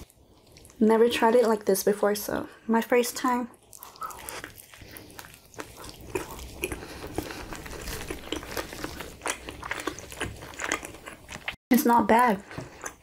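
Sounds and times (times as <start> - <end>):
chewing with crunches: 0.0 - 0.8, 3.5 - 11.6, 12.2 - 13.0.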